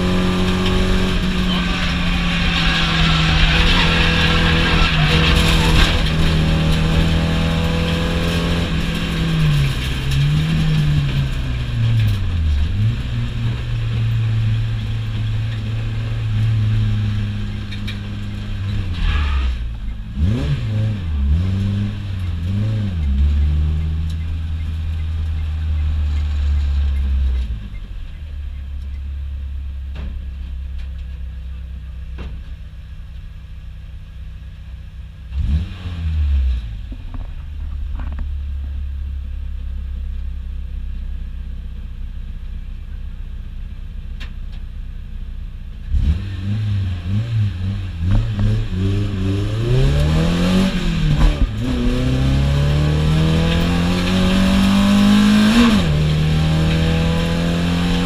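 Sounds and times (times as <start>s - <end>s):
car engine revving: 0.0s - 28.8s, 35.2s - 38.2s, 45.8s - 58.0s.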